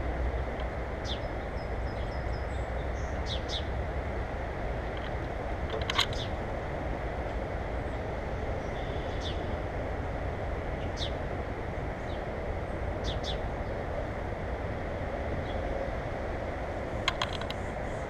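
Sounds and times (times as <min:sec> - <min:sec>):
low rushing background noise: 0:00.0 - 0:18.0
small birds chirping: 0:01.0 - 0:03.8, 0:06.0 - 0:06.4, 0:07.8 - 0:09.6, 0:10.8 - 0:11.2, 0:13.0 - 0:13.8.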